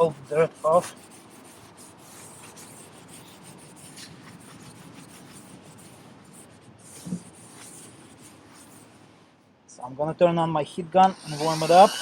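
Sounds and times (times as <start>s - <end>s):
rag rubbing rubber roof: 0.0s - 6.1s.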